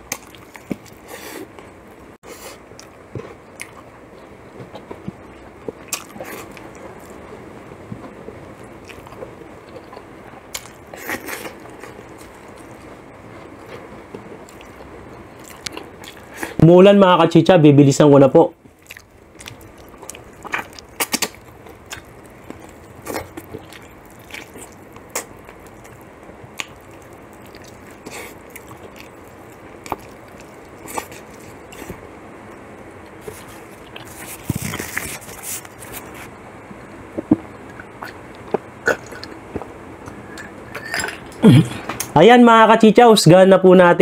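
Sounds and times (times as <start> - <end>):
biting and chewing fried chicken: 0.0 - 1.6, 2.4 - 7.3, 8.0 - 16.6, 18.6 - 32.1, 33.0 - 36.3
wet mouth clicks: 18.9 - 22.1, 23.1 - 26.0, 37.7 - 40.5.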